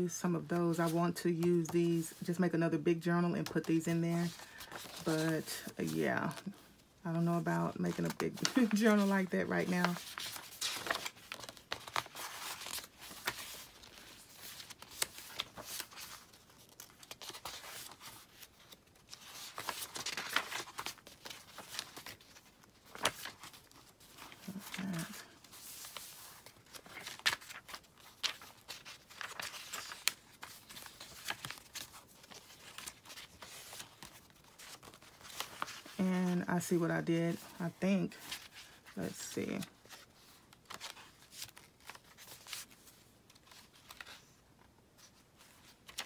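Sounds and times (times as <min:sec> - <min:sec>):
paper rustling and crinkling: 0:03.4 - 0:06.8, 0:07.5 - 0:36.1, 0:36.7 - 0:46.0.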